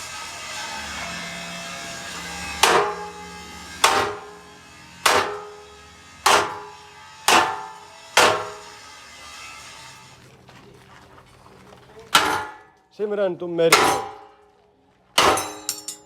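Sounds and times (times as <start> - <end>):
hammer striking metal: 2.4 - 8.8, 12.2 - 12.7, 13.7 - 14.4, 15.2 - 16.0
low background hum: 10.2 - 16.0.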